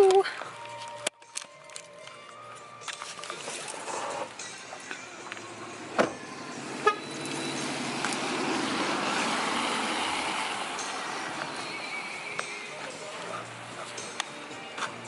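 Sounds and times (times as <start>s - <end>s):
street traffic: 0.0s - 15.0s
car door shutting: 5.9s - 6.3s.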